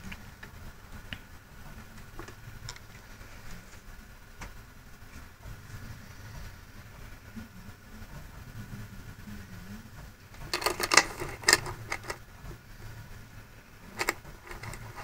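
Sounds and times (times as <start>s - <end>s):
low steady hum: 0.0s - 15.0s
handling clicks and knocks: 10.4s - 12.2s, 14.0s - 15.0s.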